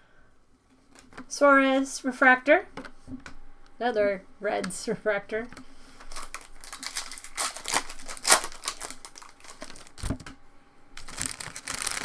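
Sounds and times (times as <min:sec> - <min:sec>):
foil wrapper crinkling and tearing: 0:06.0 - 0:10.3, 0:11.0 - 0:12.0.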